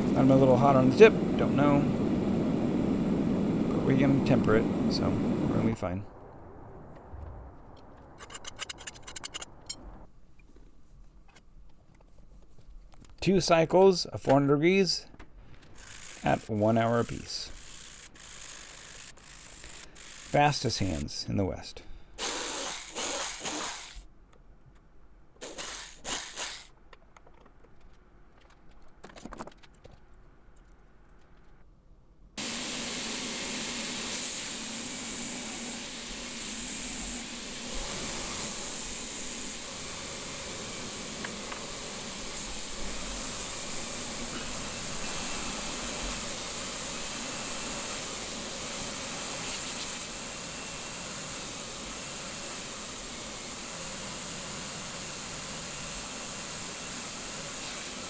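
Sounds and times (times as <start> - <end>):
faint hum: 0.0 - 10.1
steady hissing: 0.0 - 10.1, 15.6 - 24.0, 25.4 - 26.7, 32.4 - 58.0.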